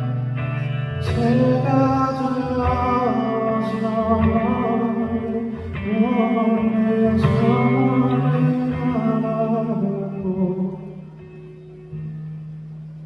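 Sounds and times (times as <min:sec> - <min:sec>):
man singing a slow ballad: 0:00.8 - 0:11.2.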